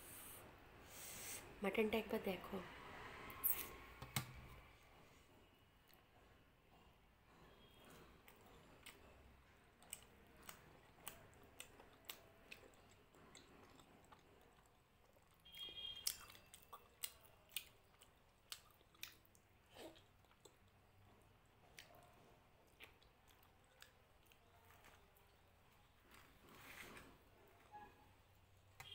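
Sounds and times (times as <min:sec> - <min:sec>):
person chewing with lip smacks: 0:08.2 - 0:26.2.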